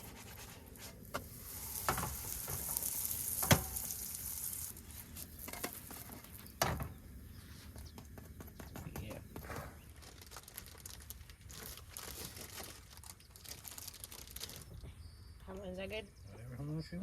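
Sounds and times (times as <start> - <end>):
dough sizzling in a pan: 0.0 - 6.9.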